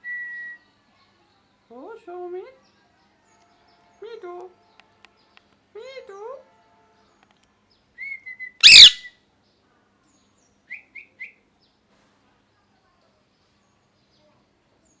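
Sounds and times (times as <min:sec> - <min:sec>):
parakeet chirps: 0:08.6 - 0:09.0
parakeet harsh screech: 0:08.6 - 0:09.0
parakeet whistle: 0:08.6 - 0:09.1.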